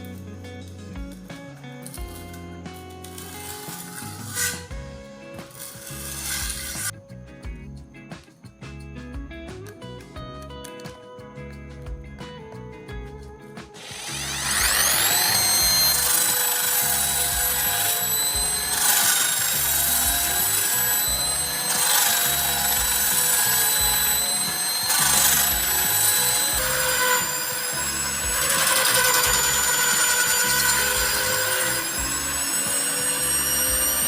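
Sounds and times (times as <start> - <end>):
power tool whining: 0.0 - 7.1, 13.6 - 34.0
knife blade grinding: 14.2 - 34.0.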